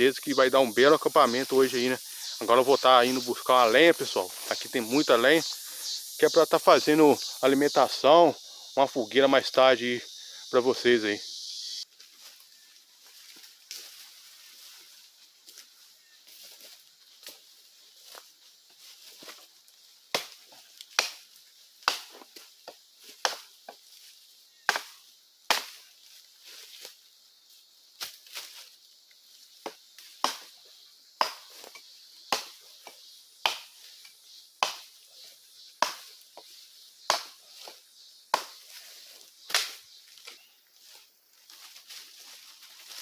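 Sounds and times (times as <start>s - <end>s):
axe chopping wood: 30.2s - 30.5s, 31.2s - 31.7s, 32.3s - 32.6s, 34.6s - 34.9s, 35.8s - 36.1s, 37.1s - 37.4s, 38.3s - 38.6s.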